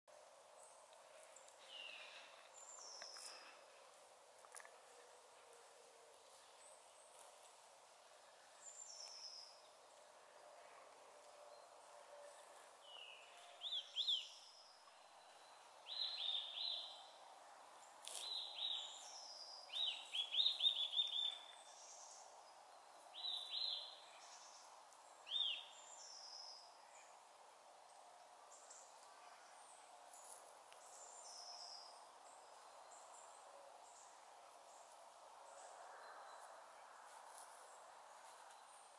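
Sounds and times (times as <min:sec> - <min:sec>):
woodland birds calling: 0:01.0 - 0:07.4, 0:11.5 - 0:17.1, 0:17.8 - 0:22.3, 0:22.9 - 0:27.2.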